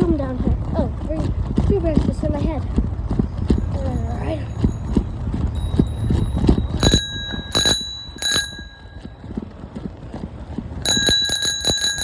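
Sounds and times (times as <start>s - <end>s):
bicycle bell ringing: 3.7s - 9.4s, 10.8s - 12.0s.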